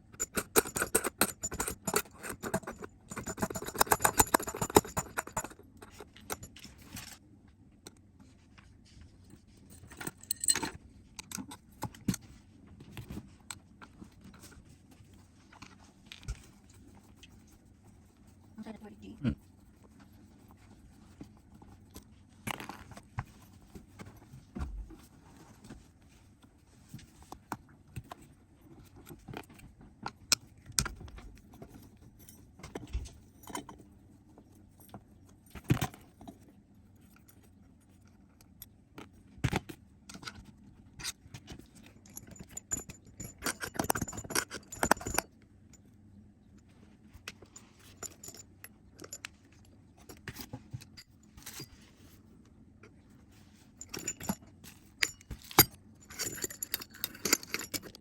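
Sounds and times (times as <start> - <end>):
metal tools clinking and scraping: 0.1 - 7.2, 9.8 - 12.0, 42.0 - 45.2, 50.0 - 51.9, 53.8 - 58.0.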